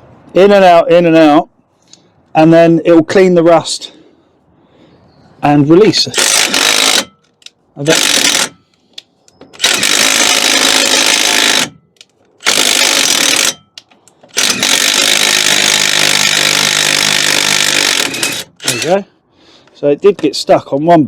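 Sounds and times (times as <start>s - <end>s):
power tool running: 12.4s - 13.6s, 14.4s - 18.9s.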